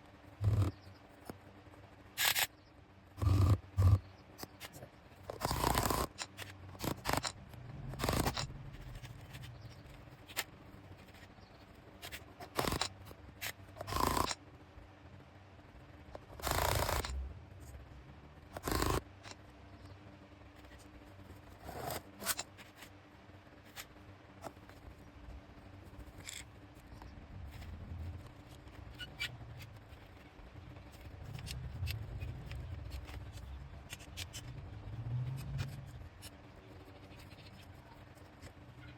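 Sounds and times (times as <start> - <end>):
low rumble: 7.3 - 10.2.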